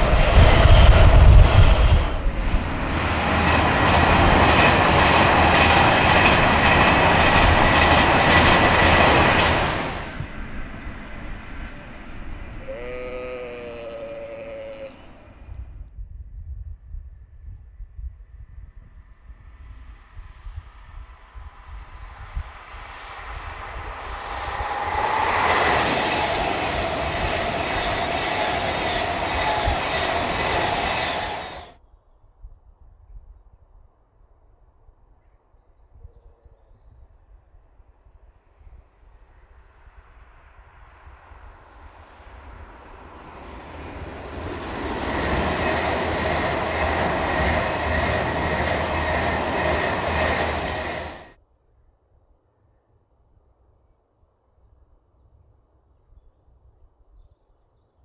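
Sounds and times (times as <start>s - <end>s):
train passing at speed: 0.0s - 15.7s, 19.4s - 31.8s, 38.1s - 51.4s
high-pitched whining tones: 44.4s - 51.3s.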